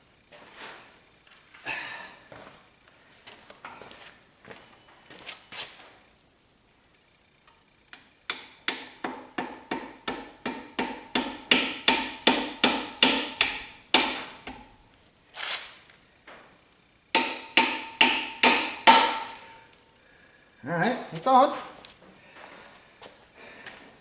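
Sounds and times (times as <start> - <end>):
hammer striking metal: 8.3 - 14.8, 17.2 - 19.7.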